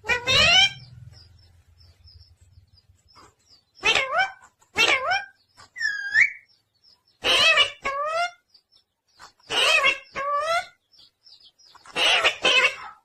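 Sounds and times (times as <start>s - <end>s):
parrot calling: 0.0s - 0.9s, 3.8s - 6.5s, 7.2s - 8.4s, 9.5s - 10.8s, 11.8s - 13.0s.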